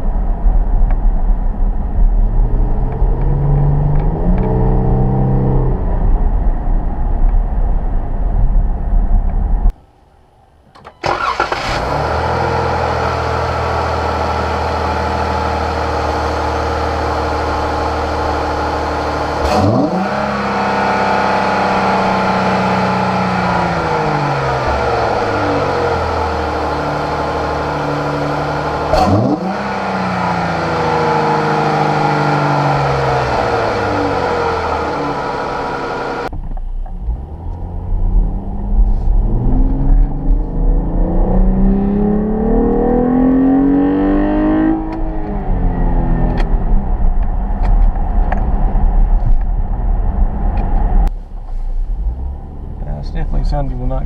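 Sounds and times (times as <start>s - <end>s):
car engine revving: 1.0s - 8.0s, 11.0s - 54.0s.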